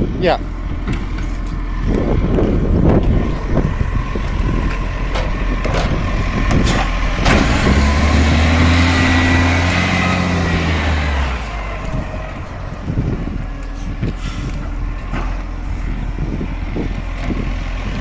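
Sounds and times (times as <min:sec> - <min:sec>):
truck engine running: 0:00.0 - 0:18.0
garbage truck knocks and clanks: 0:04.5 - 0:08.1.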